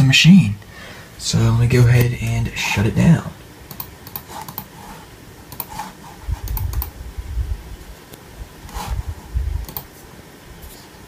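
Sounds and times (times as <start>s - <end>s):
computer mouse and key clicks: 3.7s - 4.7s, 5.5s - 6.9s, 9.6s - 10.0s.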